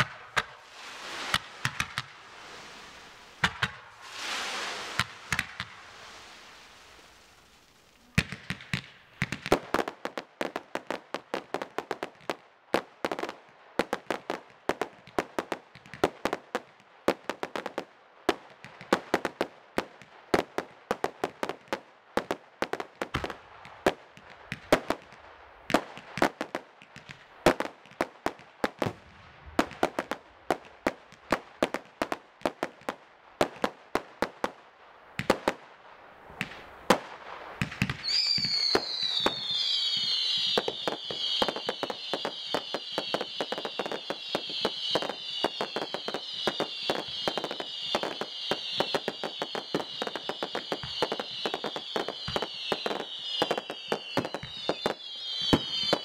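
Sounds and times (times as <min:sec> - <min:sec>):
firework whistles: 0:00.0 - 0:08.8, 0:37.4 - 0:56.0
firework shells bursting: 0:00.0 - 0:09.5.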